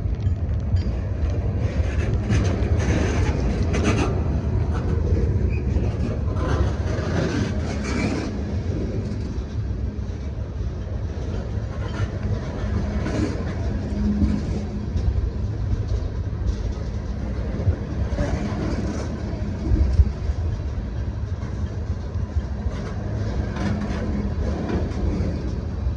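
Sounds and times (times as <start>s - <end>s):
train wheels rumbling on rail: 0.0s - 25.9s.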